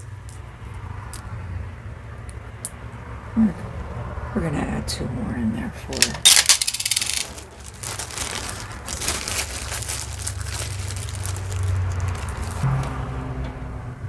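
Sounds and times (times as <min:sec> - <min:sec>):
rustling and crinkling: 0:06.0 - 0:12.6
beads and jewelry clicking: 0:06.3 - 0:07.4.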